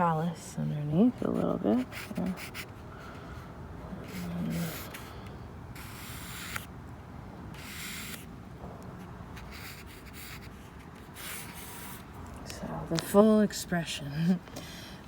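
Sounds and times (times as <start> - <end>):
pen scratching on paper: 1.2 - 2.8, 4.0 - 5.1, 5.8 - 6.7, 7.6 - 8.3, 9.4 - 12.0.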